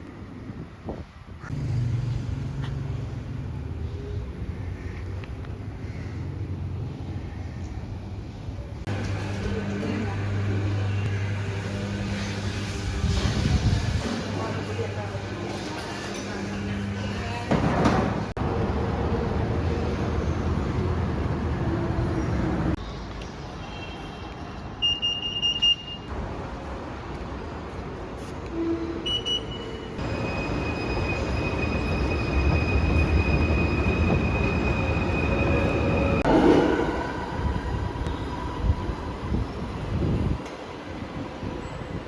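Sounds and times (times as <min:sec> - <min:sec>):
train carriage rumble: 0:08.7 - 0:22.8, 0:26.1 - 0:42.0.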